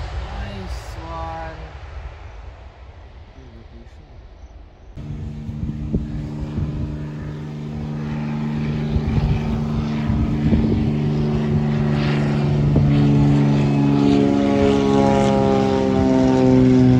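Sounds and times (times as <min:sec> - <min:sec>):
jet engines roaring on takeoff: 0:00.0 - 0:16.9.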